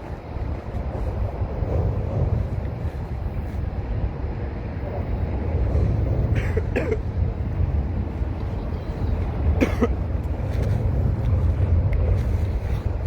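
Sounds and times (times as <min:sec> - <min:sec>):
low outdoor rumble: 0:00.0 - 0:13.0
person coughing: 0:06.4 - 0:07.0, 0:09.6 - 0:10.0.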